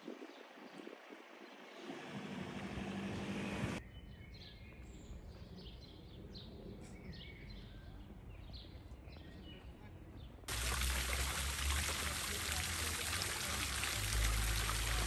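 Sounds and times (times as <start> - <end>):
faint low town hum: 1.6 - 3.8, 9.6 - 15.0.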